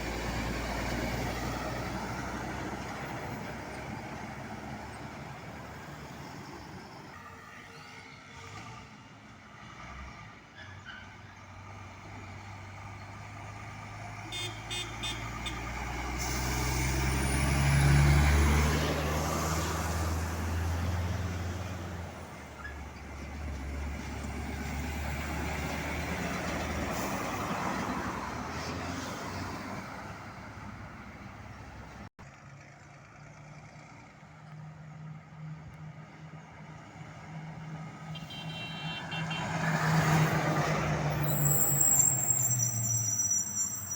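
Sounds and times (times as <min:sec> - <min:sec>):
heavy truck driving past: 0:00.0 - 0:07.1, 0:11.5 - 0:38.1, 0:39.0 - 0:43.9.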